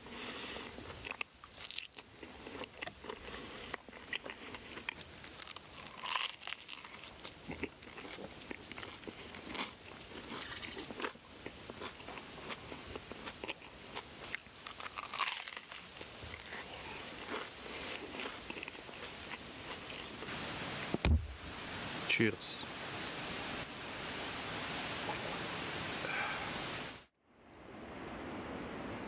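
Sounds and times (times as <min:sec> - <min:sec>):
person chewing crunchy food: 0:00.0 - 0:20.3.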